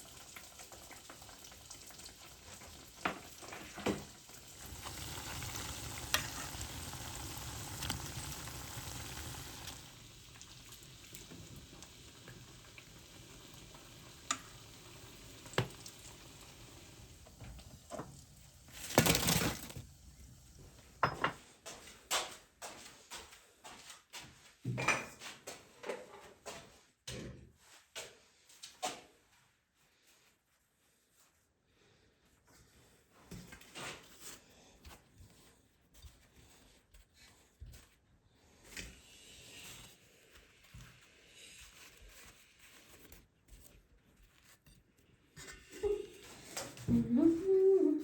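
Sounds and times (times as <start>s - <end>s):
louder rush of frying: 0.0s - 21.0s
dough sizzling in hot oil: 0.0s - 21.1s.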